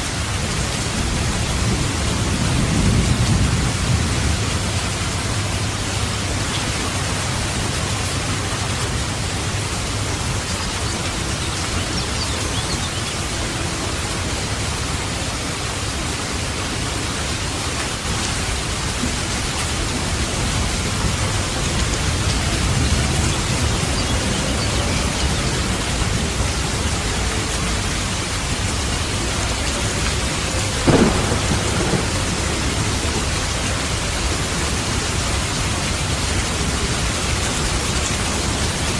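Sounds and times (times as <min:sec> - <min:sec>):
steady rain: 0:00.0 - 0:38.9
low rumbling thunder: 0:00.9 - 0:05.7, 0:18.4 - 0:34.8.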